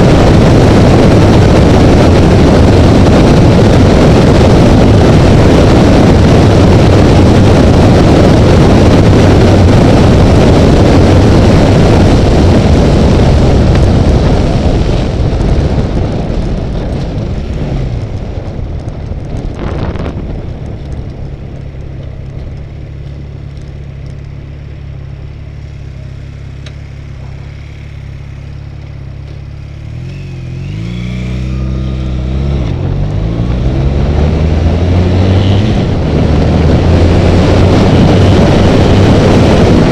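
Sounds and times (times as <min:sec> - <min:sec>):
loud wind rush: 0:00.0 - 0:21.8, 0:29.8 - 0:39.9
motorcycle engine: 0:00.0 - 0:39.9.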